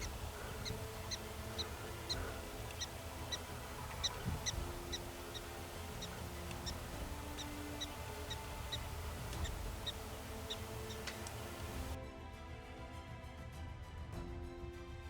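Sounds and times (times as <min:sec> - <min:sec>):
low wind rumble: 0:00.0 - 0:12.0
prairie dog alarm chirps: 0:00.0 - 0:12.0.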